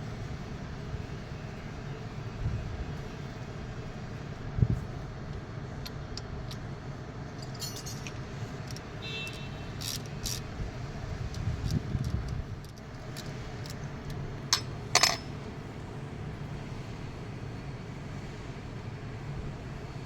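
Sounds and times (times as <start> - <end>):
metal tools clinking: 7.3 - 10.4, 14.5 - 15.3
short metallic ring: 7.4 - 8.2, 14.5 - 15.3.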